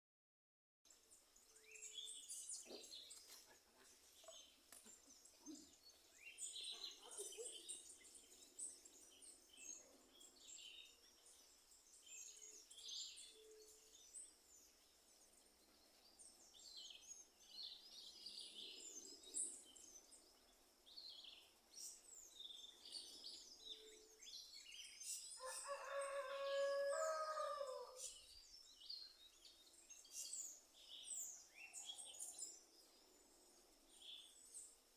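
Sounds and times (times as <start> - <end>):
small birds chirping: 0.9 - 34.9
rooster crowing: 25.4 - 28.0.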